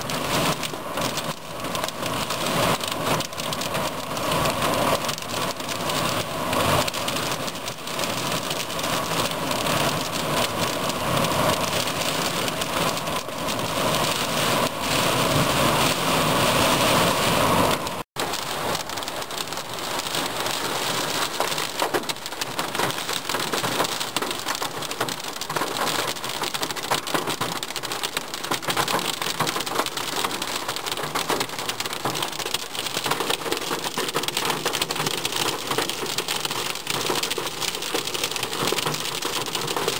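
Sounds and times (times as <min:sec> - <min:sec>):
crackling patter of raindrops: 0:00.0 - 0:39.9
heavy rain hissing: 0:08.8 - 0:21.8.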